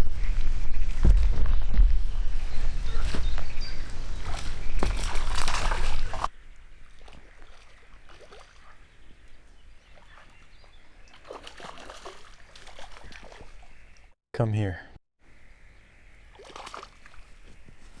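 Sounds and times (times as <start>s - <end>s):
water splashing and sloshing: 4.1s - 14.2s, 16.2s - 17.8s
faint splashes: 4.2s - 13.8s, 16.3s - 17.4s.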